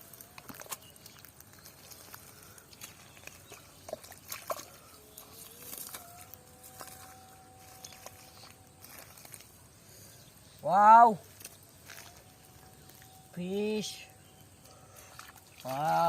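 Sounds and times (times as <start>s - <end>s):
water and mud splashing: 0.0s - 16.0s.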